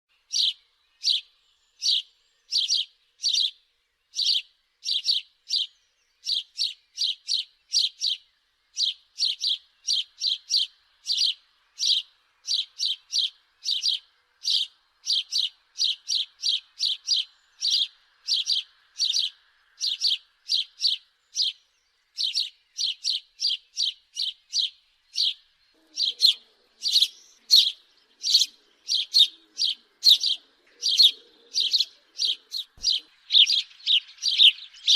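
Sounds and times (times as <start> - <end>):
house sparrow chirping: 0.2 - 34.9.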